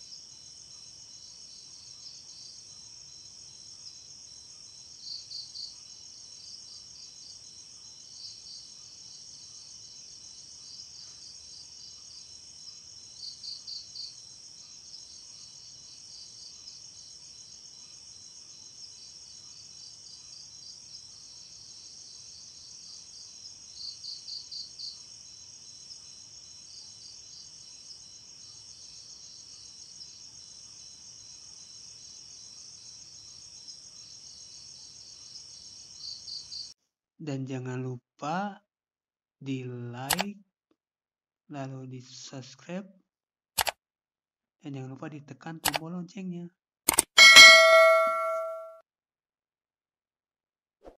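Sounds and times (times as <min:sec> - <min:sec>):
crickets trilling: 0:00.0 - 0:36.7
nearby cricket chirping: 0:00.0 - 0:36.7.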